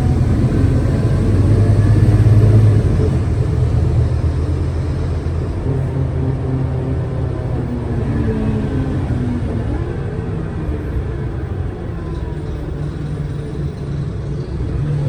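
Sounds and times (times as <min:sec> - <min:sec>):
bus engine humming: 0:00.0 - 0:15.0
road rumble: 0:00.0 - 0:15.0.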